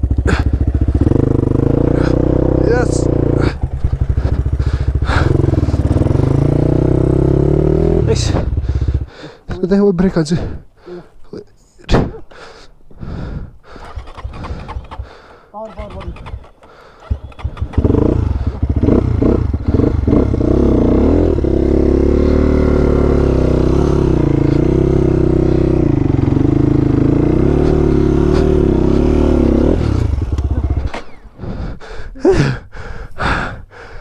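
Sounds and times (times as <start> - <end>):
dirt bike engine revving: 0.0 - 9.3, 13.7 - 31.4.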